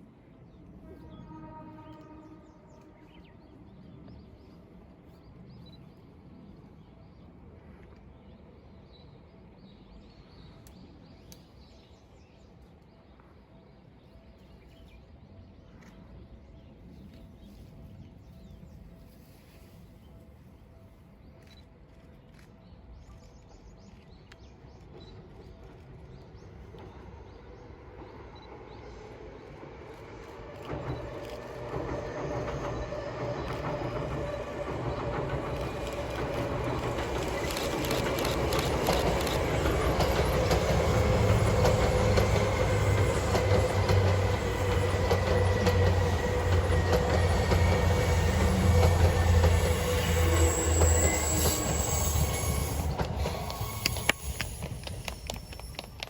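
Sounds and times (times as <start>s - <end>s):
electric train approaching: 24.6s - 56.0s.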